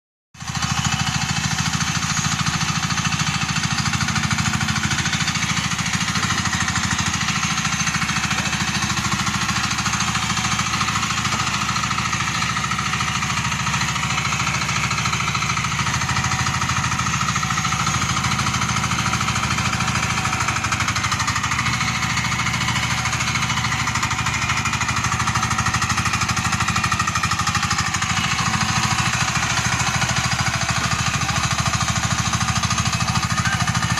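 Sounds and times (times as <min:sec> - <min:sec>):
excavator engine running: 0:00.4 - 0:33.9.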